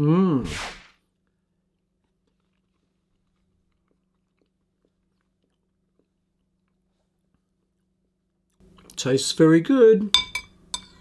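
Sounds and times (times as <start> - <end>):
faint steady hum: 1.2 - 11.0
chewing with wet mouth clicks: 1.7 - 7.8.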